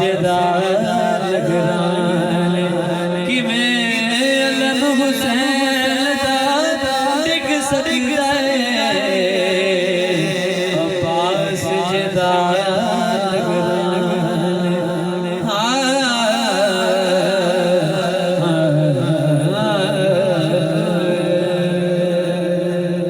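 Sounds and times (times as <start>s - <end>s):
man singing: 0.0s - 23.0s.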